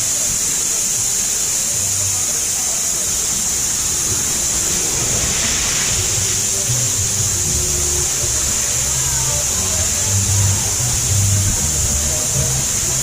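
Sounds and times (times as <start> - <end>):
rushing water hiss: 0.0 - 13.0.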